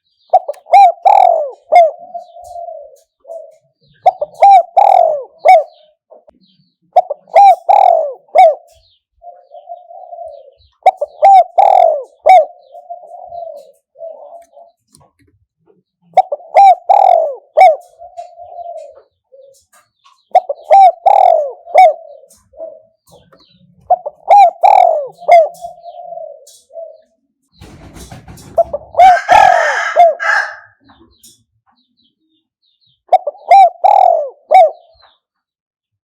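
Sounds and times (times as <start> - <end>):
dove cooing: 0.0 - 35.2.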